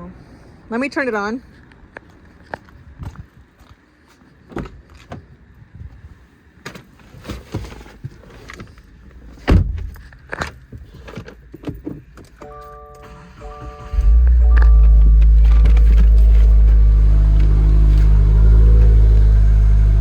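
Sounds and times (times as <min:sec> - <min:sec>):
car door thump: 0:09.5 - 0:09.9
electronic warning chime: 0:12.5 - 0:16.7.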